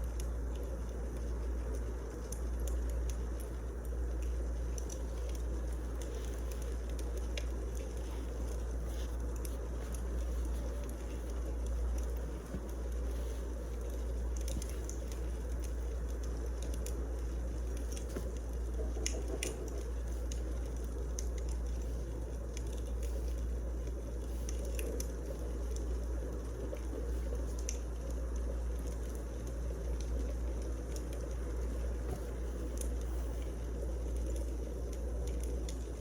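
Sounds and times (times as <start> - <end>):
firewood crackling and popping: 0.0 - 36.0.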